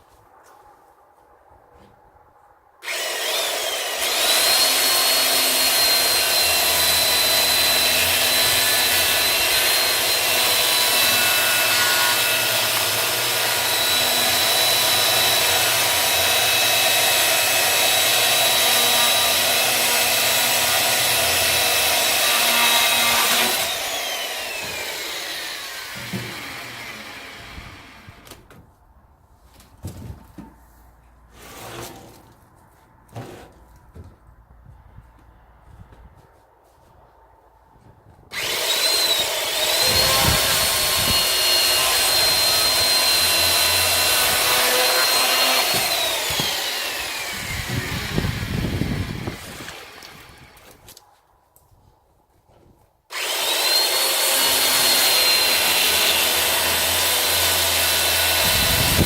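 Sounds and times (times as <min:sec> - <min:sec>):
electric saw cutting firewood: 0:02.8 - 0:28.4, 0:38.3 - 0:51.0, 0:53.1 - 0:59.0.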